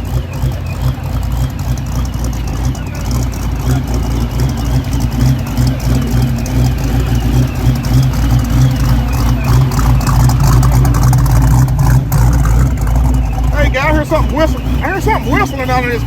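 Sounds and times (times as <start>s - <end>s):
car engine running: 0.0s - 16.0s
high wavering whistle: 12.6s - 16.0s.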